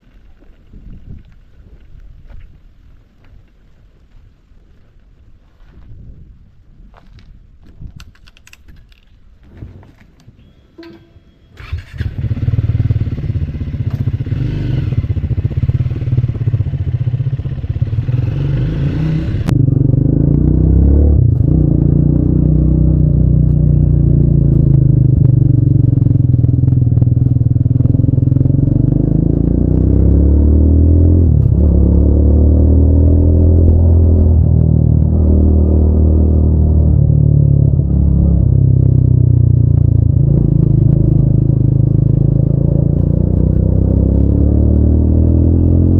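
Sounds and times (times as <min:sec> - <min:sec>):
motorcycle engine through gears: 0:08.0 - 0:45.9.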